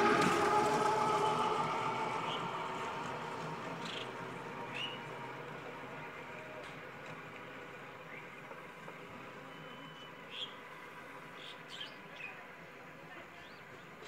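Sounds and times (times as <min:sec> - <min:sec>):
small birds chirping: 0:09.6 - 0:10.6.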